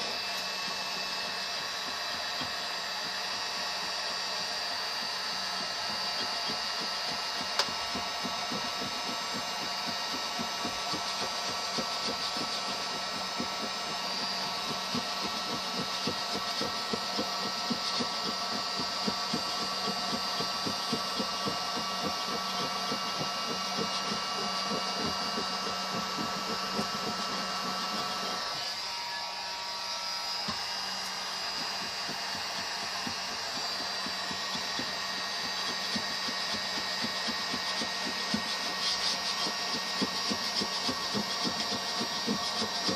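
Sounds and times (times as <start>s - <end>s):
small motor humming: 0.0s - 42.9s.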